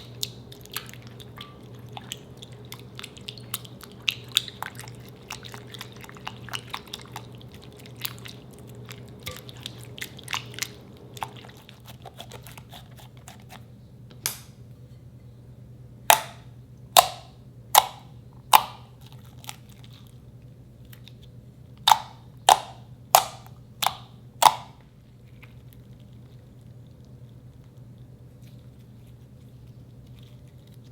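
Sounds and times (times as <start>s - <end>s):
slime wet crackles: 0.0s - 12.8s
slime sharp pops: 21.9s - 24.8s.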